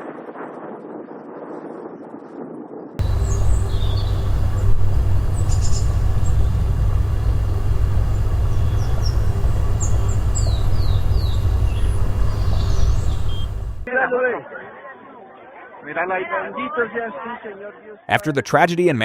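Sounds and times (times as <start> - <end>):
loud low rumble: 3.0 - 13.9
small birds chirping: 3.0 - 13.9.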